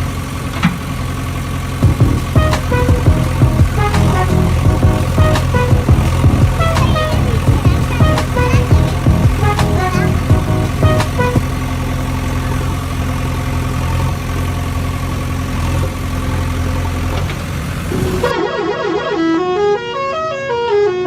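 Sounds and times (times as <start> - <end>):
vehicle engine idling hum: 0.0 - 18.3
short melodic tones: 1.8 - 11.5
stepping tones: 1.8 - 11.5.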